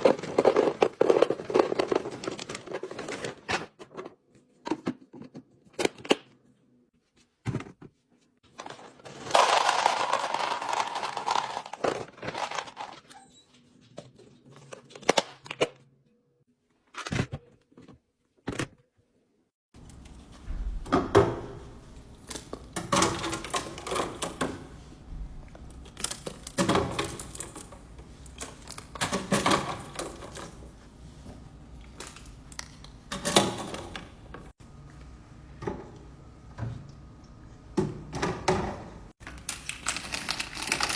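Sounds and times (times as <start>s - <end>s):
food packages rustling: 0.0s - 4.1s, 8.6s - 13.1s, 39.2s - 40.9s
packaging crinkling or tearing: 39.2s - 40.9s.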